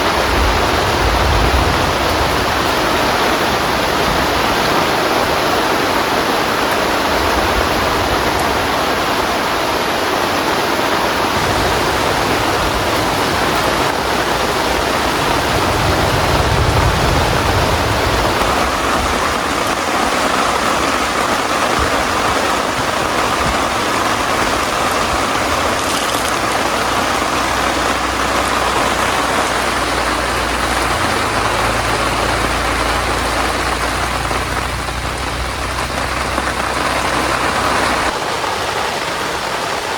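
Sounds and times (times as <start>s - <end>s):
heavy rain hissing: 0.0s - 39.9s
low rumble: 11.4s - 19.8s.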